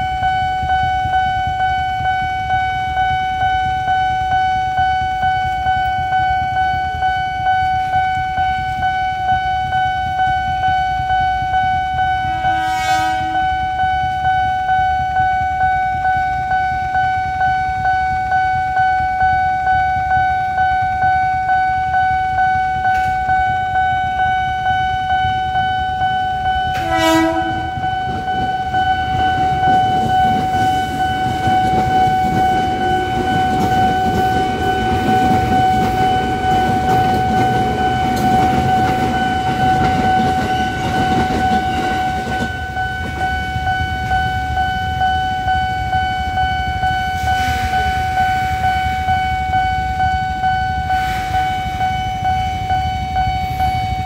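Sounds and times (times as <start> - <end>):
electric train rumbling past: 0.0 - 54.0
level crossing alarm tone: 0.0 - 54.0
train horn: 12.0 - 14.0, 26.6 - 28.4, 47.0 - 49.3, 50.8 - 52.1.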